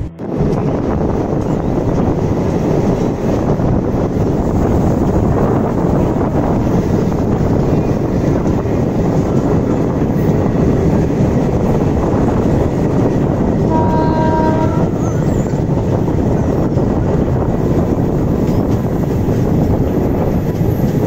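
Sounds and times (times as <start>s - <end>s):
train wheels rumbling on rails: 0.0s - 21.0s
train horn: 13.6s - 15.5s.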